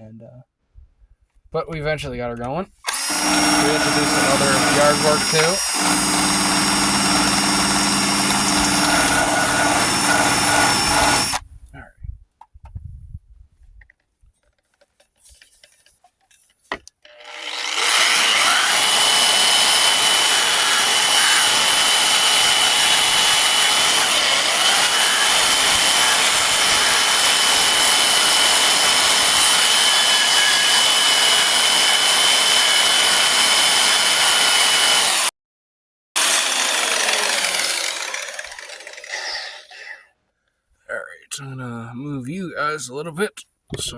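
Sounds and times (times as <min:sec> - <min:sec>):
power tool grinding metal: 0:02.9 - 0:11.4, 0:17.1 - 0:35.3, 0:36.2 - 0:40.0.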